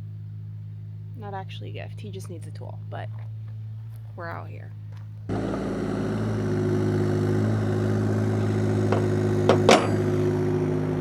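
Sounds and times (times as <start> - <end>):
engine idling: 0.0 - 11.0
sharp metallic knocks: 8.8 - 10.3.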